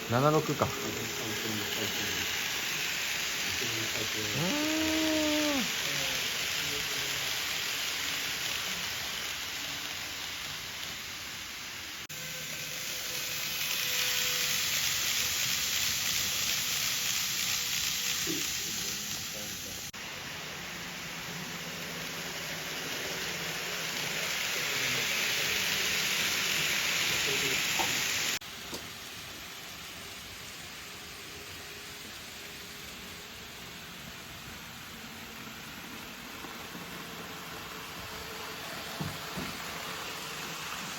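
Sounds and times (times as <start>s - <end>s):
model train wheels rattling on track: 0.0s - 4.3s, 5.6s - 11.4s, 13.0s - 19.8s, 21.2s - 33.1s.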